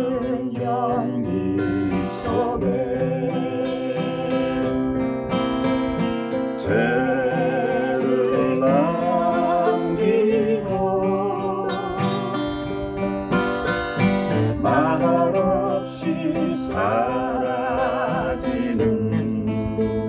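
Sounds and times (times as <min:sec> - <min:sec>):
acoustic guitar strumming: 0:00.0 - 0:20.0
person singing: 0:06.6 - 0:12.7, 0:14.6 - 0:20.0.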